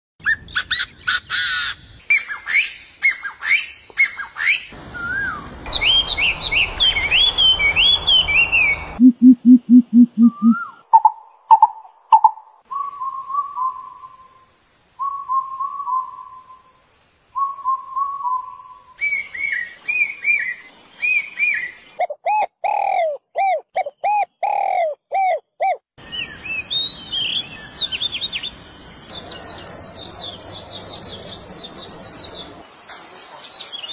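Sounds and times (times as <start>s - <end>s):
bird chirping: 0.2s - 16.8s, 17.4s - 33.9s
whistled bird phrases: 2.1s - 10.8s, 12.7s - 16.8s, 17.4s - 21.8s
low rapid bird pulses: 4.9s - 12.3s.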